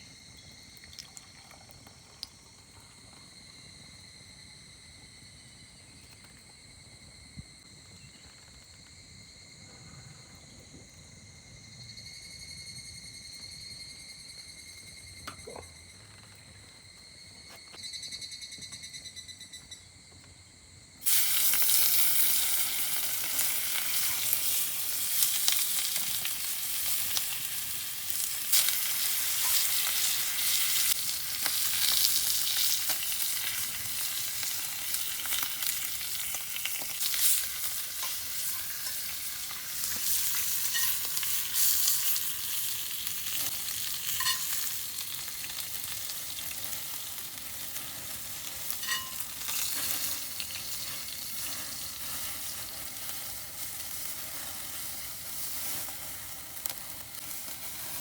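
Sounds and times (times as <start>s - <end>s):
insects chirping: 0.0s - 58.0s
food sizzling in a pan: 21.0s - 58.0s.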